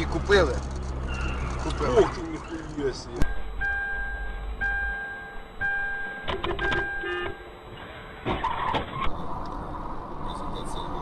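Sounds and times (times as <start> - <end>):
road noise: 0.0 - 11.0
electronic beeping: 1.0 - 9.0.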